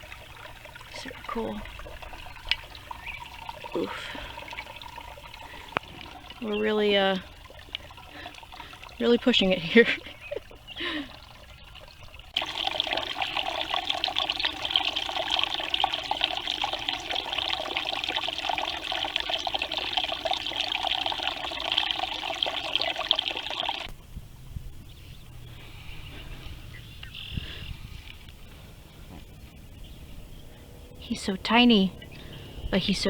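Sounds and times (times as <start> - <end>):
water trickling: 0.0 - 23.9.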